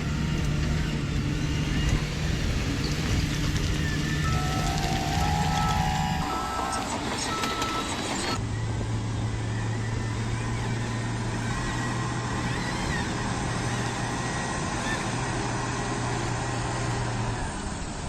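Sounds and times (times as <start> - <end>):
toy machinery motor whirring: 10.1 - 16.4.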